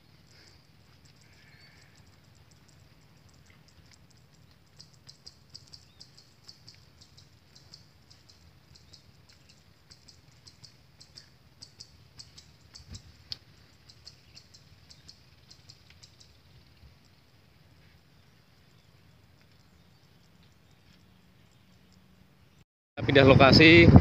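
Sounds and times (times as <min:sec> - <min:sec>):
high-pitched ticking chirps: 0:00.0 - 0:22.2.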